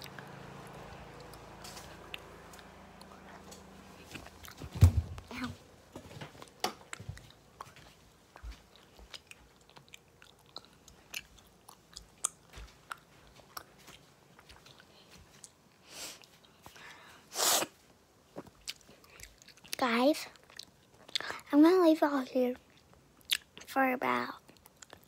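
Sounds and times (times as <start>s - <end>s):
gum chewing: 1.1s - 5.5s, 6.4s - 15.6s, 18.4s - 21.4s, 22.6s - 23.7s, 24.4s - 25.0s.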